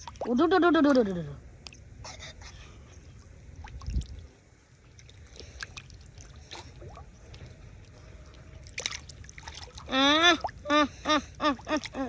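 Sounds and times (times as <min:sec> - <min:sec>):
hands sloshing in muddy water: 0:03.5 - 0:10.8.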